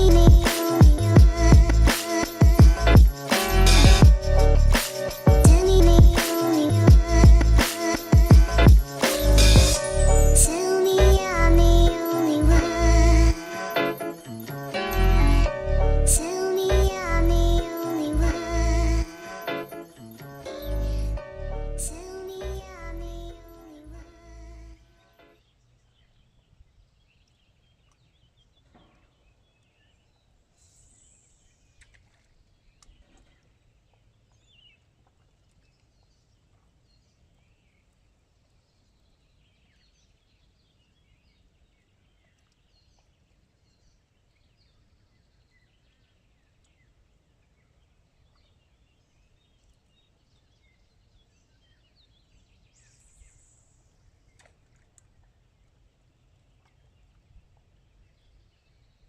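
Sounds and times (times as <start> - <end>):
low steady rumble: 1.0 - 1.9
brief hiss: 1.9 - 2.4, 3.2 - 3.8, 4.7 - 5.3, 6.2 - 6.6, 7.6 - 8.2, 8.8 - 9.7.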